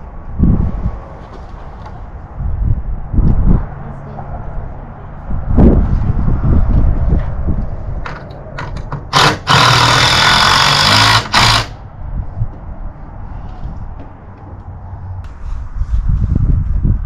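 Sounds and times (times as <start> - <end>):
handheld power tool running: 9.1 - 11.8.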